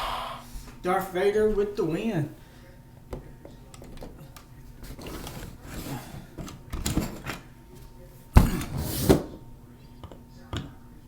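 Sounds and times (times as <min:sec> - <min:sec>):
plastic toy trucks clicking and rustling: 0:03.7 - 0:07.5
plastic toys clattering: 0:03.7 - 0:07.5.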